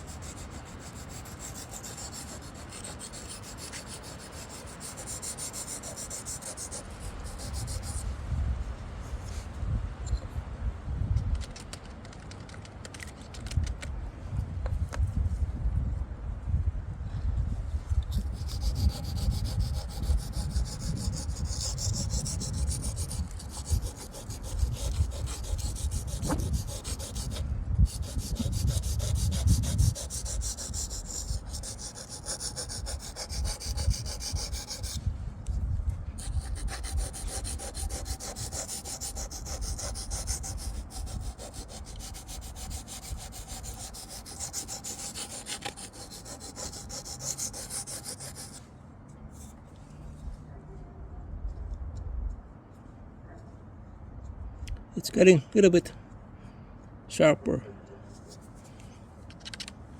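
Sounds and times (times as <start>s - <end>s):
knife rubbing on sharpening stone: 36.2s - 48.6s.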